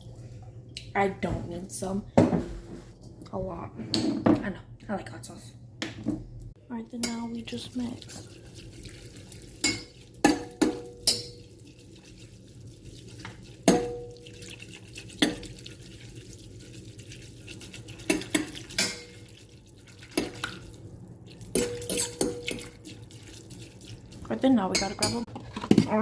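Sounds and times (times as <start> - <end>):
utensil clinking against a bowl: 9.6 - 11.8, 13.2 - 15.6, 17.4 - 19.4, 21.5 - 24.0, 24.6 - 25.9.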